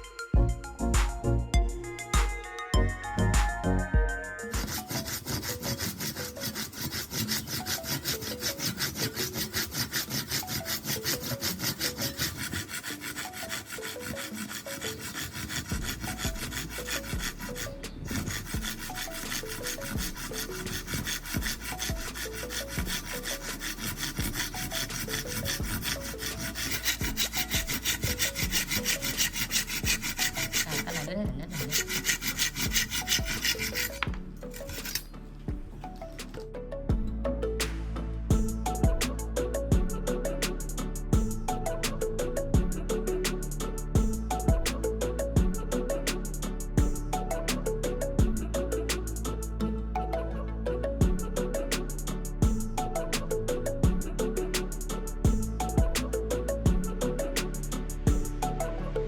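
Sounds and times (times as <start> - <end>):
hand saw cutting wood: 4.6 - 35.1.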